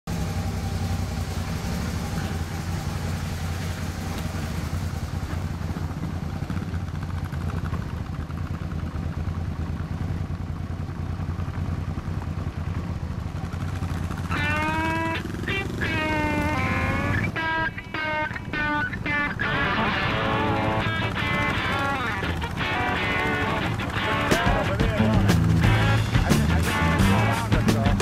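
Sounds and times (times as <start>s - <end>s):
motorcycle engines idling: 0.1s - 28.0s.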